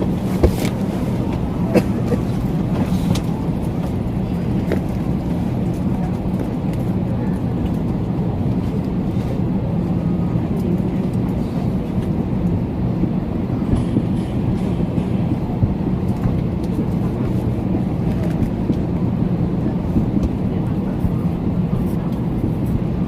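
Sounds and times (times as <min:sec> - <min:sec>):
airliner engine drone: 0:00.0 - 0:23.0.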